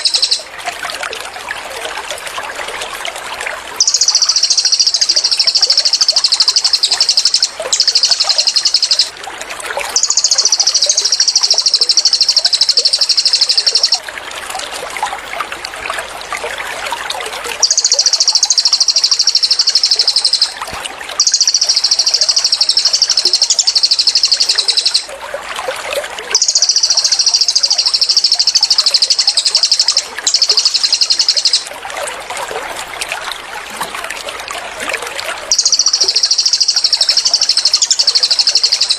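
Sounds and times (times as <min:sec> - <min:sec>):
bird high rapid trill: 0:00.0 - 0:00.5, 0:03.8 - 0:09.2, 0:10.0 - 0:14.0, 0:17.6 - 0:25.1, 0:26.3 - 0:31.7, 0:35.5 - 0:38.9
trickle of running water: 0:00.0 - 0:38.9.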